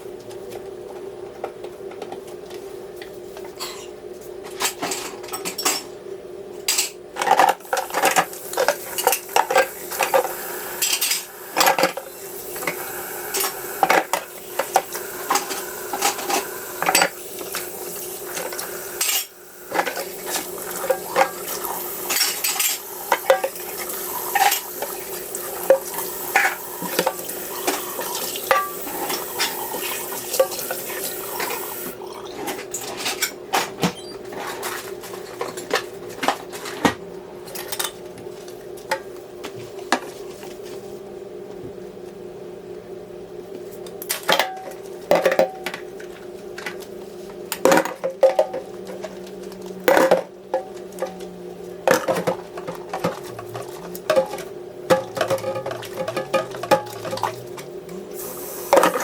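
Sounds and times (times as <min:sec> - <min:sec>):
steady hum: 0:06.1 - 0:33.0
dishes and cutlery clattering: 0:18.3 - 0:24.8, 0:51.9 - 0:57.4.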